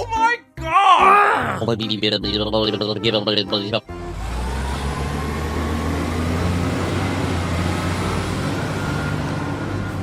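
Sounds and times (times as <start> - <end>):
heavy vehicle engine humming: 3.8 - 10.0.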